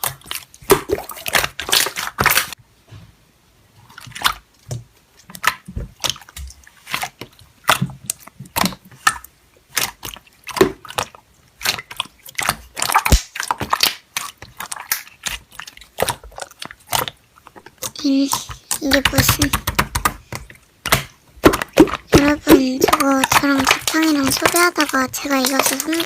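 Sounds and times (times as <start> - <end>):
slime squeezed with sticky pops: 5.3 - 26.0.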